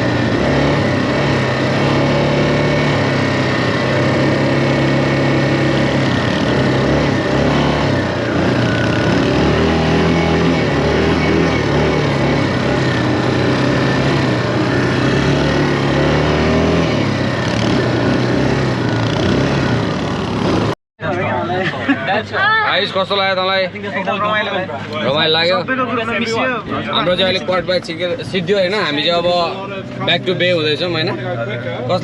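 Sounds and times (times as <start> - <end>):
quad bike engine running: 0.0 - 20.8.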